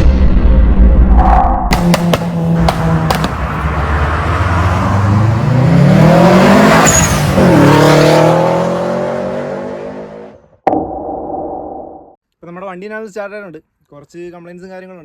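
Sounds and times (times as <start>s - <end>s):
car engine accelerating: 1.7s - 10.4s.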